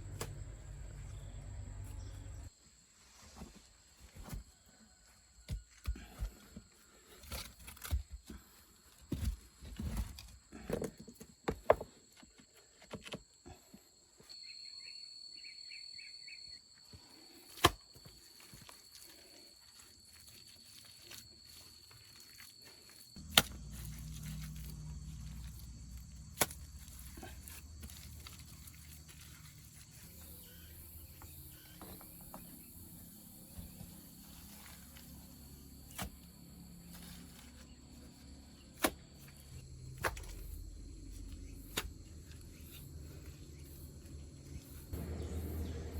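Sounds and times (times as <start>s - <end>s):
low rumble: 39.6s - 45.9s.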